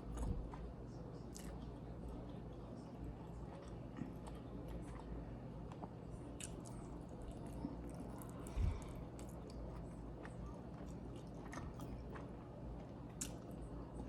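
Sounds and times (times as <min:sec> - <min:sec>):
person chewing: 0:05.7 - 0:13.6.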